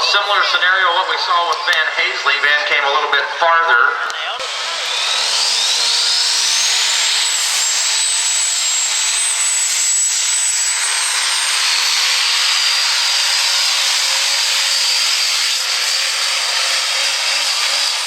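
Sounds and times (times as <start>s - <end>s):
diesel truck engine roaring: 4.0s - 16.7s.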